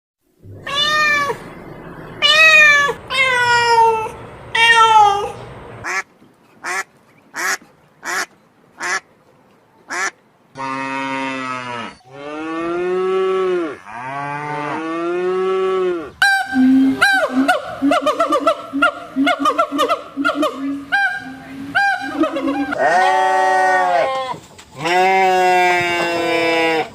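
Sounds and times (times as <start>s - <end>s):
short high animal calls: 0.4s - 5.3s
long low rising animal calls: 0.4s - 5.7s, 10.8s - 26.9s
falling animal calls: 0.4s - 6.0s, 15.7s - 26.9s.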